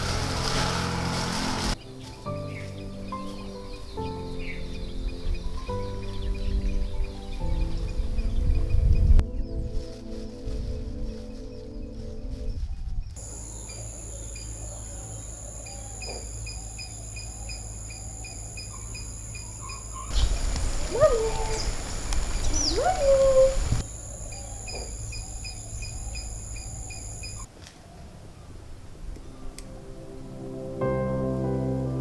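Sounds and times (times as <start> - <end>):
high insect-like drone: 0.0 - 3.4, 13.2 - 27.5
animal chirping: 13.2 - 27.5
rising and falling sliding calls: 13.7 - 27.5.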